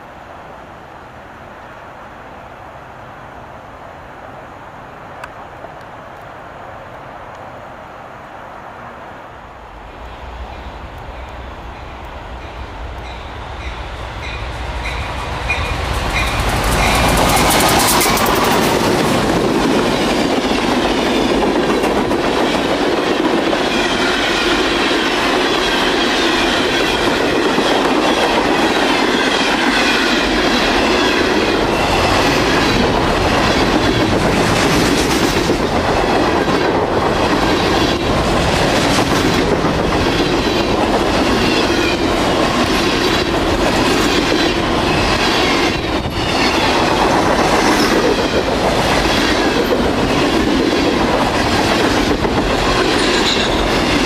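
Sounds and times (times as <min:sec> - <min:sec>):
freight train cars rolling: 0:09.8 - 0:54.0
wheels clicking over rail joints: 0:14.8 - 0:24.1.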